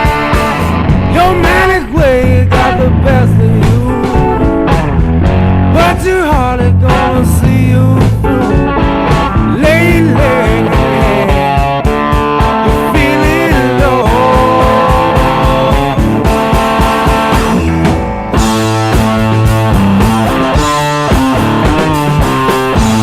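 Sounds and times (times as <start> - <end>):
bluesy electric guitar bending notes: 0.0 - 23.0
rock music: 0.0 - 23.0.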